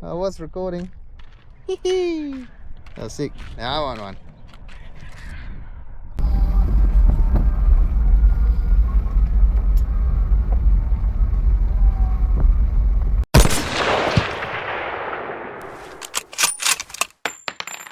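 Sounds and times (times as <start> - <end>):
heavy low rumble: 6.2 - 13.3
loud blast: 13.4 - 15.6.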